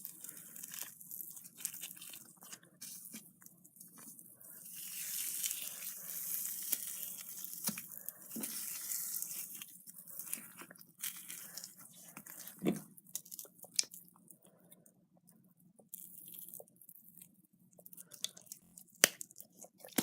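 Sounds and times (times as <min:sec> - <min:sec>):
slime squishing by hand: 0:00.0 - 0:14.1.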